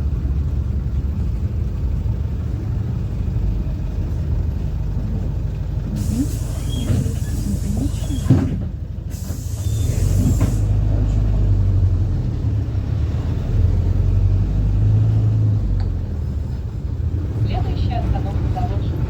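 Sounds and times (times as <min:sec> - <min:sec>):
bus diesel engine running: 0:00.0 - 0:19.0
compressed air hissing: 0:06.0 - 0:08.3, 0:09.1 - 0:10.8.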